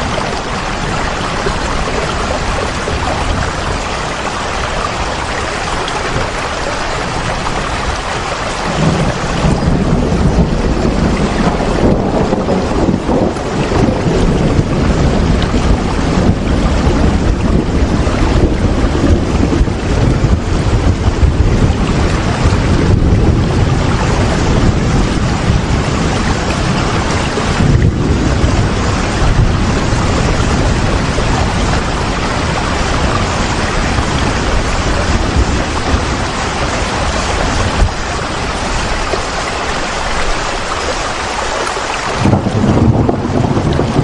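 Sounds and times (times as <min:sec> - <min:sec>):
heavy rain hissing: 0:00.0 - 0:44.0
low rumble: 0:42.2 - 0:44.0.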